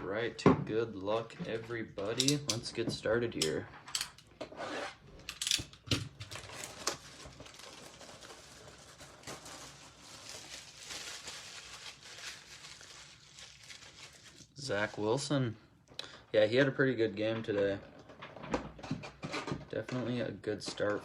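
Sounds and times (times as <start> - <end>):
packaging rustling and crinkling: 6.1 - 15.1.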